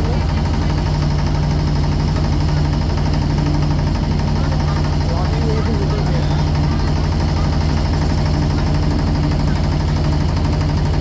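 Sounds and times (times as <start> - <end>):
boat engine throbbing: 0.0 - 11.0.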